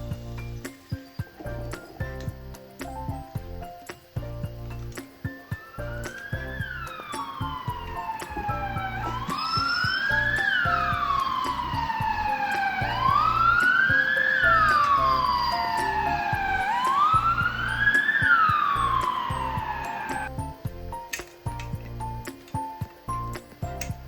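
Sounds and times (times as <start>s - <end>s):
background music with steady beat: 0.0s - 24.0s
police siren wailing: 5.6s - 20.3s.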